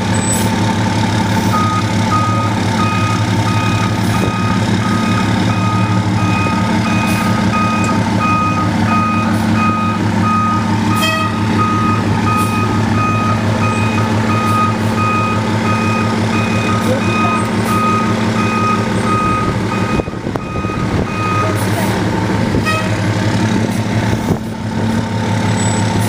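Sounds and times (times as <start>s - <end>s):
truck engine running: 0.0s - 26.0s
reversing alarm beeps: 1.5s - 21.6s.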